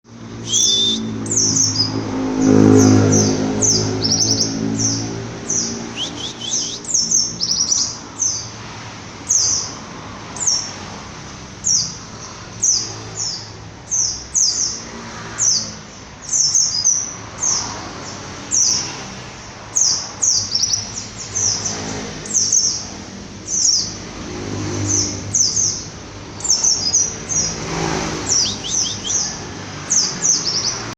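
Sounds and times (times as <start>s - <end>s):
bird chirping high downward sweeps: 0.1s - 8.5s, 19.8s - 30.9s.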